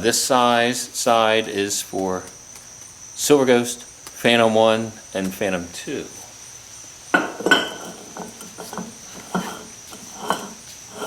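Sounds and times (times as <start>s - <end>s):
metal tool clinking: 7.2s - 11.0s.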